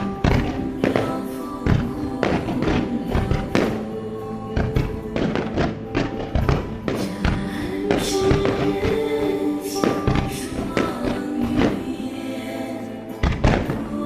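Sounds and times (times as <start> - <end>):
fireworks display music: 0.0 - 14.0
firework booms: 4.6 - 9.1.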